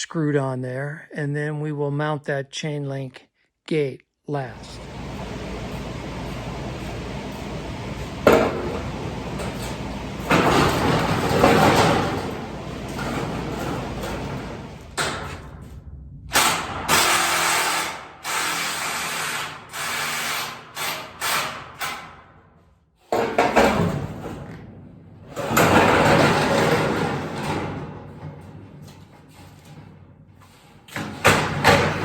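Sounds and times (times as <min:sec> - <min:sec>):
power tool bursts: 0:16.3 - 0:21.6.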